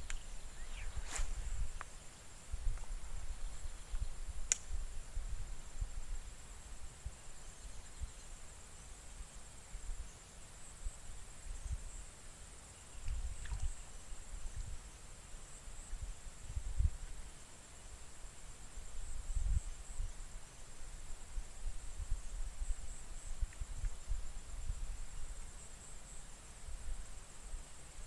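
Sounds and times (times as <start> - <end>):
sharp click: 0.0 - 0.2, 4.5 - 4.7
wind rumble on microphone: 0.0 - 8.3, 13.0 - 15.0, 15.6 - 17.3, 18.7 - 26.0
high insect drone: 0.0 - 28.0.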